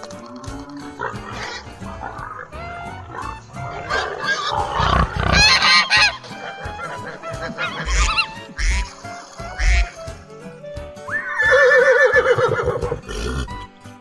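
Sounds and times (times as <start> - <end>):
background music: 0.0 - 14.0
honking bird calls: 1.0 - 10.3.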